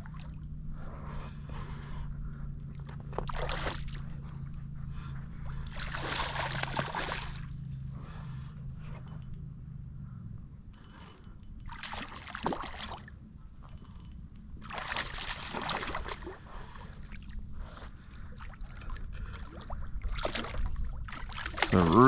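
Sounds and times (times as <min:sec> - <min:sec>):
water splashing beside kayak: 0:05.6 - 0:07.6, 0:11.7 - 0:13.2, 0:14.6 - 0:17.4, 0:18.3 - 0:22.0
small knocks and clicks: 0:13.6 - 0:14.5.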